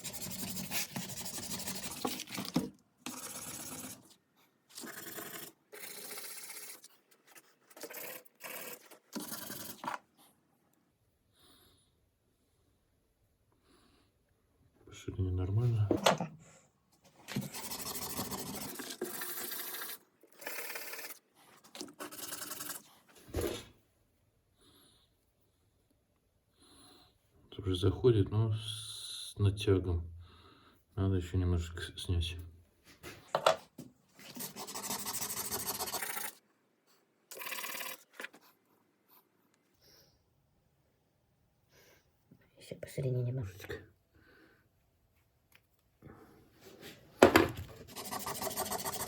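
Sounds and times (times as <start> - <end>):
brush rubbing on abrasive: 0.0 - 2.4, 34.2 - 36.4, 47.8 - 49.0.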